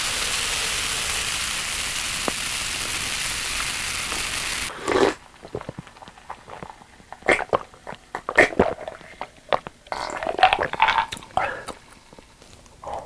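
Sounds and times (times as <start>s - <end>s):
wet bites or slurps: 4.7s - 11.9s
chewing with wet mouth clicks: 4.9s - 13.0s.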